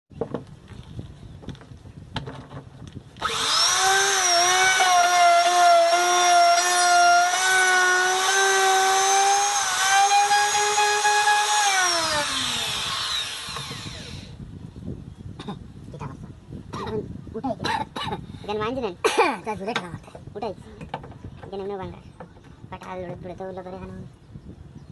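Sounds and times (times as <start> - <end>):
wood router motor whining: 3.2 - 14.4.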